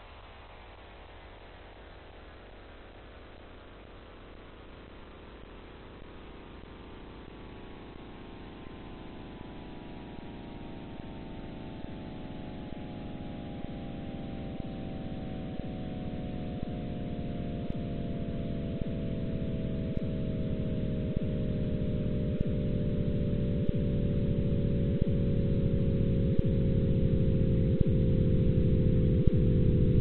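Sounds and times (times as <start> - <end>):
low rumble: 17.8 - 30.0.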